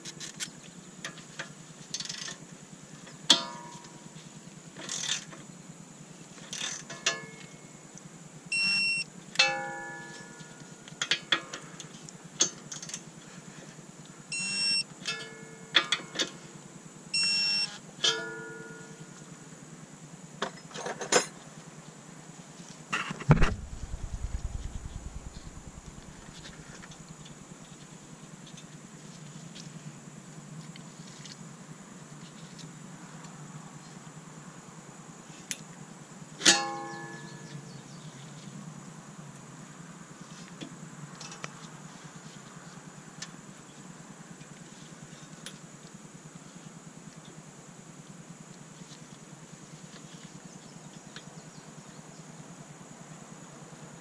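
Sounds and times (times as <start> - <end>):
torque wrench electronic beeps: 8.5 - 9.0, 14.3 - 14.8, 17.2 - 17.8
dull thump with low rumble: 23.2 - 26.9.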